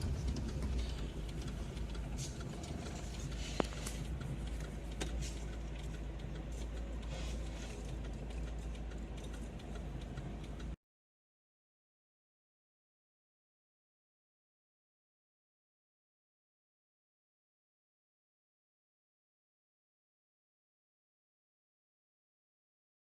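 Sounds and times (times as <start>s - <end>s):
road noise: 0.0s - 10.8s
sharp clicks: 0.0s - 10.8s
vehicle engine rumble: 0.0s - 10.8s.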